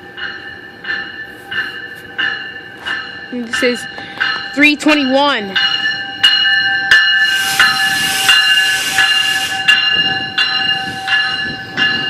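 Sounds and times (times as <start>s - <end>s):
train high whine: 0.0s - 12.0s
loud hiss of air: 7.2s - 11.4s.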